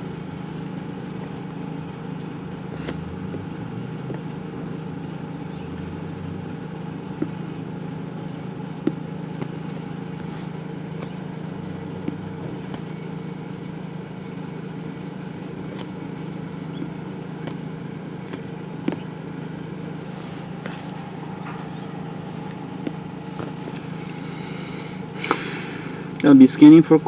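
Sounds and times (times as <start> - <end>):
vehicle engine idling: 0.0 - 27.0.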